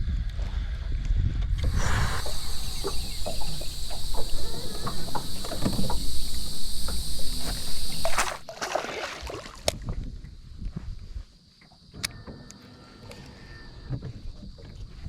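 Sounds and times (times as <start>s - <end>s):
wind rumbling on microphone: 0.0s - 8.5s, 9.6s - 11.4s
steady high hiss: 1.6s - 8.5s.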